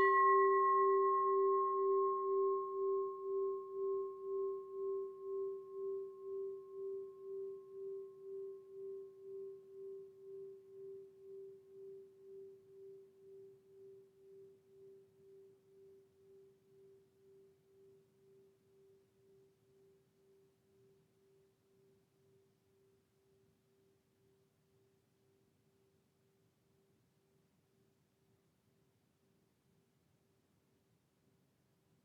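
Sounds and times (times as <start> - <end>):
singing bowl ringing: 0.0 - 19.0.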